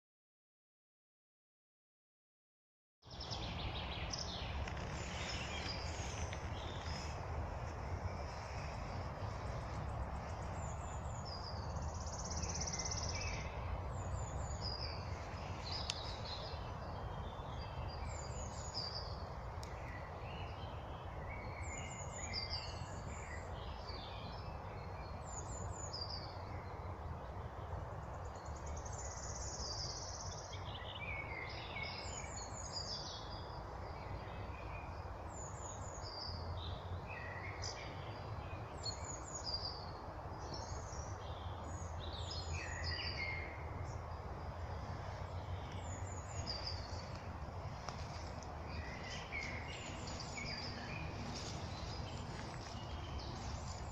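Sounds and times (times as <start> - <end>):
songbirds chirping: 3.0 - 53.9
low background rush: 33.4 - 53.9.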